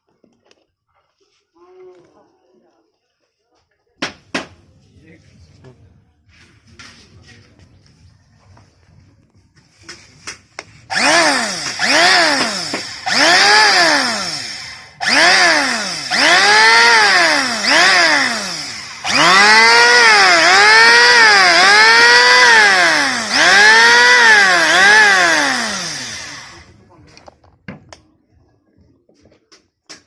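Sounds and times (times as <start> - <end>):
electric planer motor whine: 10.9 - 26.7.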